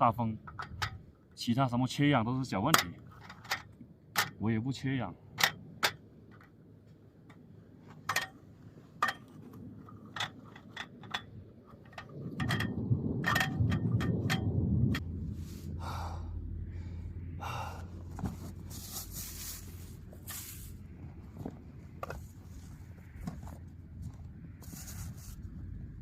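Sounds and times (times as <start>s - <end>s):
steady low hum: 0.1s - 26.0s
camp gear clicks and knocks: 0.4s - 1.0s, 2.7s - 4.4s, 5.3s - 15.0s, 18.0s - 19.1s, 20.2s - 25.2s
low rumble: 11.4s - 26.0s.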